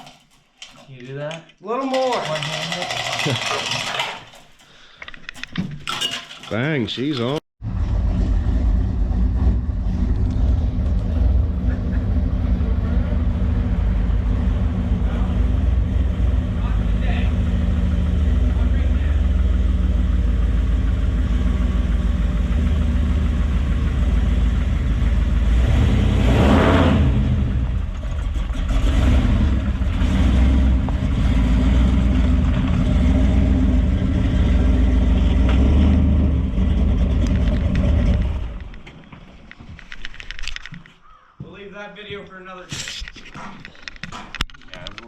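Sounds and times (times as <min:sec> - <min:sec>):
vehicle engine running: 0:07.6 - 0:38.8.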